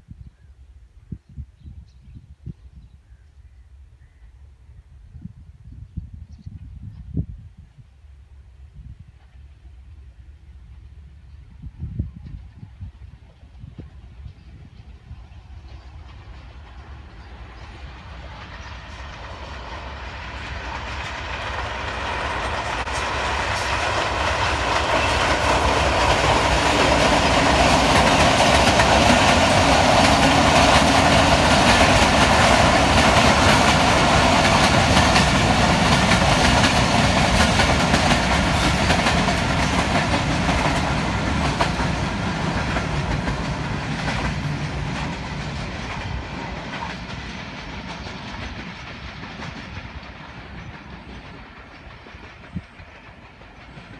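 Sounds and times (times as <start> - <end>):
train wheels clattering over rail joints: 16.0 - 53.9.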